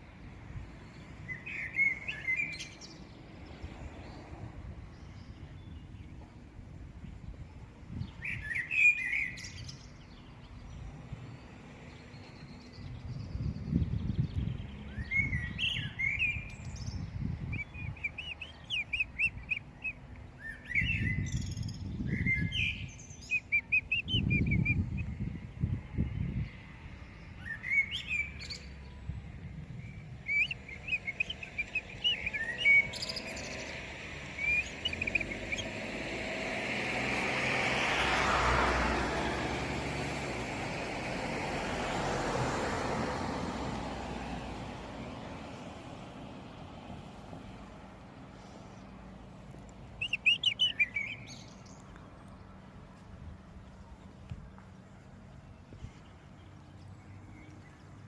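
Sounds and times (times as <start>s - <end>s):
vehicle noise: 0.0s - 58.0s
blackbird singing: 0.8s - 3.2s, 8.0s - 10.8s, 11.9s - 25.2s, 27.1s - 29.0s, 29.8s - 35.9s, 49.9s - 52.4s.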